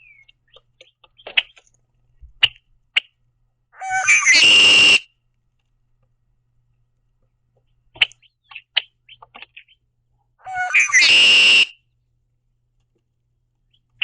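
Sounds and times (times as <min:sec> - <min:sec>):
bird chips: 0:00.0 - 0:01.8, 0:08.0 - 0:09.8, 0:10.5 - 0:11.2
bird call with buzzy trill: 0:03.8 - 0:05.0, 0:10.4 - 0:11.8.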